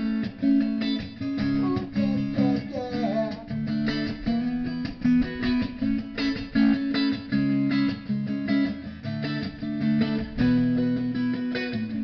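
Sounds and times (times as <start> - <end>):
guitar strumming chords: 0.0 - 12.0
person singing: 1.6 - 3.6.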